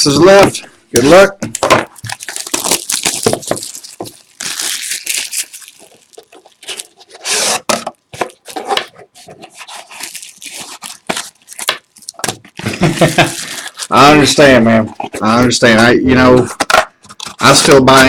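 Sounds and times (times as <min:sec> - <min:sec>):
packaging crinkling: 0:01.5 - 0:15.6
plastic wrapping tearing: 0:01.9 - 0:15.3.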